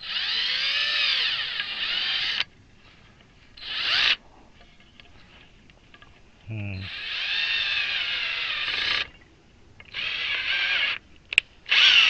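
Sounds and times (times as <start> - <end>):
power drill running: 0.0 - 2.5, 3.6 - 4.2, 6.9 - 9.1, 9.9 - 11.0, 11.7 - 12.0.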